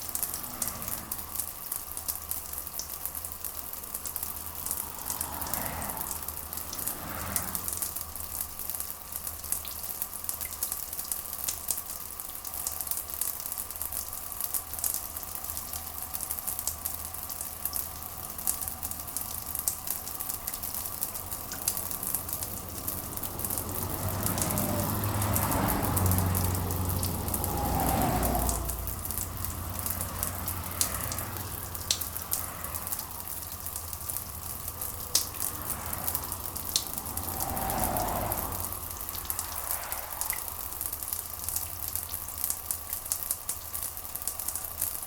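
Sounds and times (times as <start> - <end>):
rain pattering: 0.0 - 45.0.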